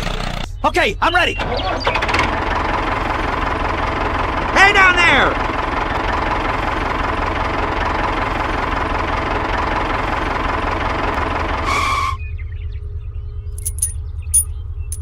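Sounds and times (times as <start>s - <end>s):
tractor engine idling: 1.4s - 12.7s.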